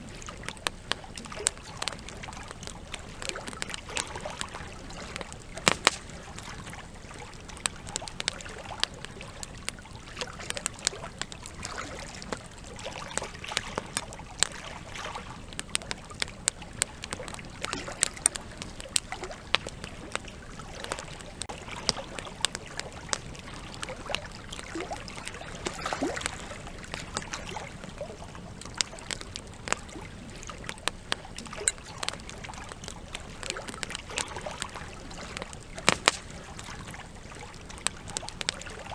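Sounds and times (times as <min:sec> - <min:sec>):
campfire crackling and popping: 0:00.0 - 0:38.9
river flowing: 0:17.0 - 0:30.5.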